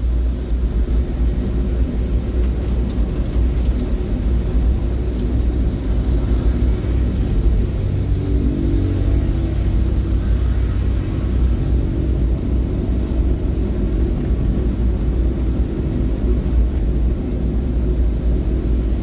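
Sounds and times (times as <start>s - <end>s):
vehicle rumble: 0.0s - 19.0s.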